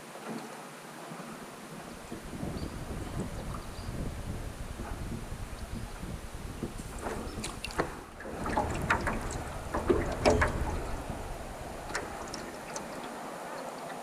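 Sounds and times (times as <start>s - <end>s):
paddle splashes: 0.1s - 13.8s
wind on microphone: 1.8s - 13.3s
knocks against metal canoe hull: 6.6s - 12.9s.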